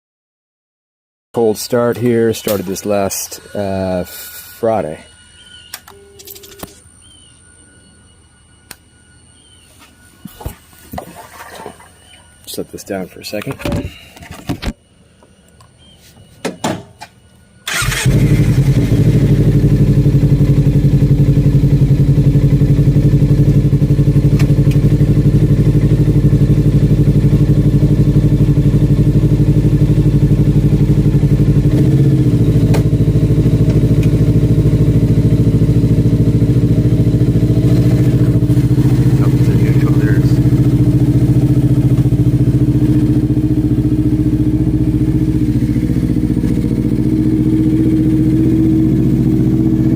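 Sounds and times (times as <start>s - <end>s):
motorcycle engine cranking: 17.6s - 20.4s
motorcycle engine idling: 17.6s - 49.9s.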